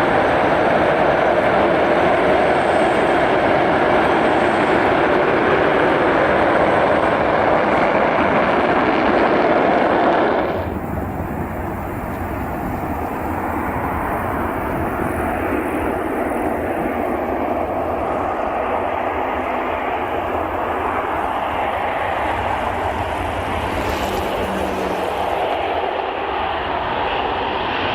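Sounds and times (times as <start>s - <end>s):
jet engines roaring: 0.0s - 27.9s.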